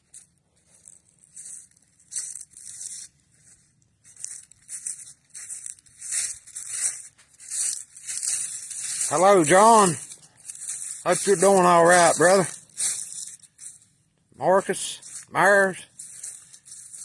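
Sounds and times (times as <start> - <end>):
footsteps crunching dry leaves: 0.0 - 17.0.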